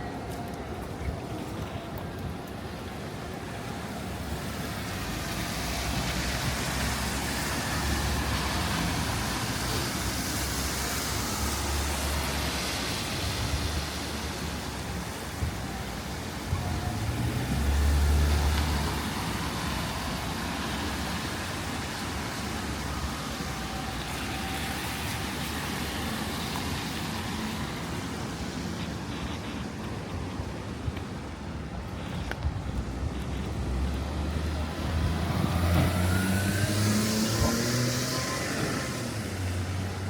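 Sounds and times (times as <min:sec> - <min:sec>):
tyres hissing on wet road: 0:00.2 - 0:40.0
passing car engines rumbling: 0:16.0 - 0:30.7, 0:31.4 - 0:40.0.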